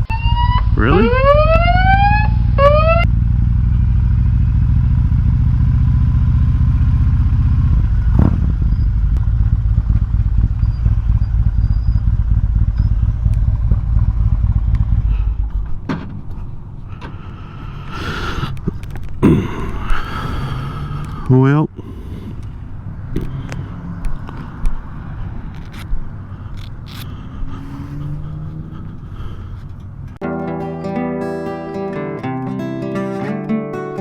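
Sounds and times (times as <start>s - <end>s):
rising siren-like wail: 0.0s - 3.2s
motorcycle engine rumbling: 0.0s - 30.2s.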